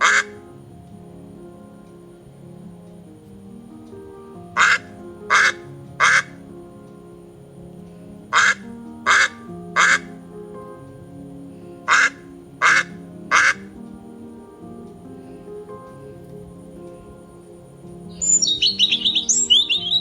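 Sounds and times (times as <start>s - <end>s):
bird harsh calls: 0.0s - 0.5s, 4.6s - 6.4s, 8.3s - 10.2s, 11.8s - 13.8s, 17.4s - 20.0s
soft background music: 0.0s - 20.0s.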